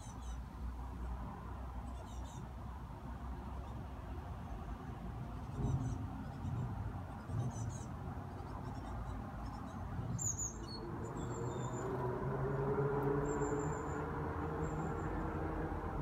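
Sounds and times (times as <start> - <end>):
small birds calling: 1.9 - 2.5, 5.4 - 12.0.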